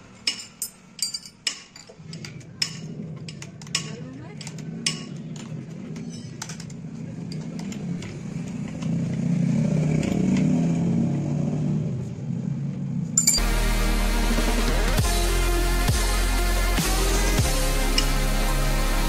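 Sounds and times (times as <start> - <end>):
spanner clinking on metal: 0.1 - 5.2, 13.2 - 13.4
electronic music with steady beat: 13.3 - 19.0.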